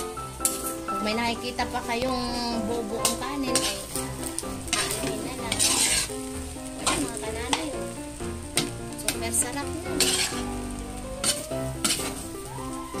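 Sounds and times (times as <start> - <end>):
frying sizzle: 0.0 - 13.0
metal spatula scraping wok: 2.4 - 7.8, 8.4 - 10.6, 11.2 - 12.3.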